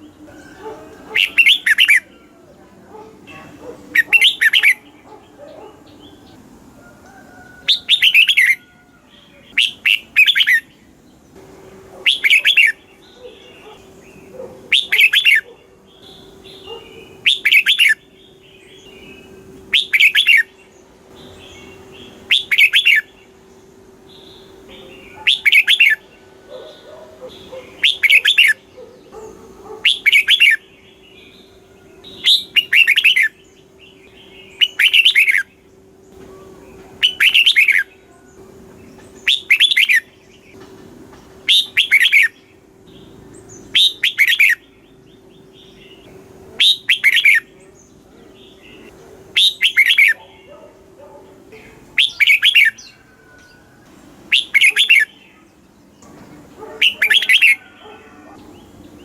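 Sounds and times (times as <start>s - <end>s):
faint steady hum: 0.0s - 59.0s
bulbul whistled song: 36.2s - 38.3s, 39.2s - 40.1s, 41.5s - 42.4s, 43.7s - 44.6s, 46.6s - 47.5s, 49.4s - 50.2s, 52.0s - 55.1s.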